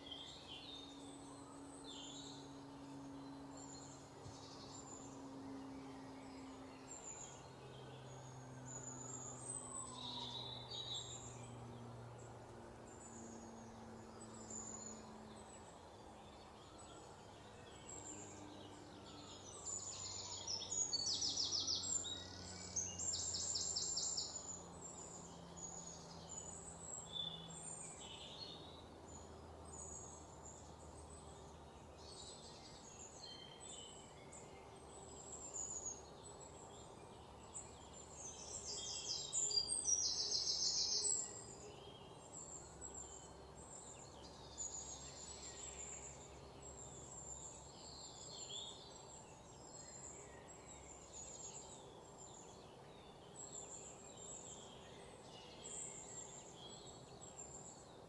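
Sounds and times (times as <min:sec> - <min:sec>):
low steady hum: 0:00.0 - 0:57.9
small birds chirping: 0:00.0 - 0:58.0.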